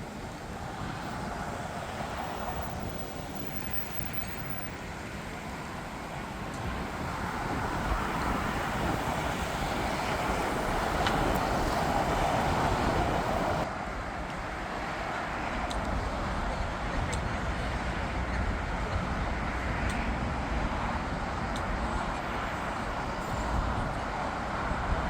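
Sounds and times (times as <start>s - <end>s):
jet engine rushing: 0.0s - 13.7s.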